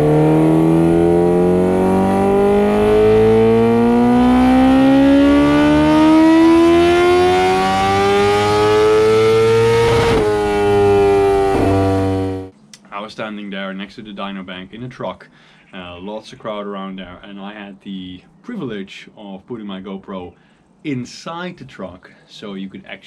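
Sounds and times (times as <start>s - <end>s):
motorcycle engine revving: 0.0s - 12.5s.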